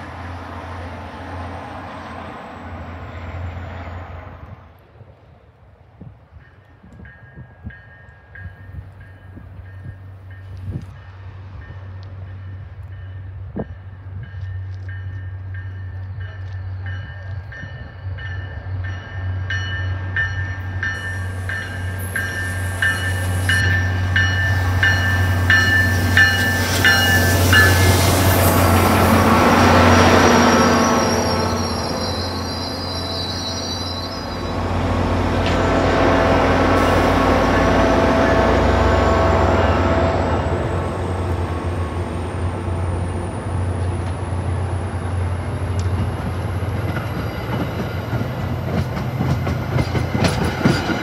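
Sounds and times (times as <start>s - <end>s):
diesel locomotive rumbling: 6.0s - 51.0s
steel wheels on rail: 6.0s - 51.0s
train bell ringing: 6.4s - 10.8s, 11.6s - 41.4s
high wheel squeal: 20.8s - 34.9s.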